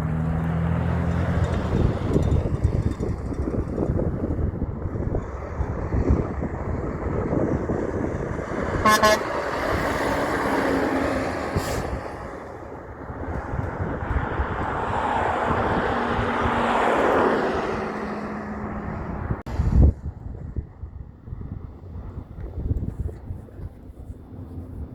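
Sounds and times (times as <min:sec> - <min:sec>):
heavy trucks passing: 0:00.0 - 0:22.2
truck horn toot: 0:08.8 - 0:09.9.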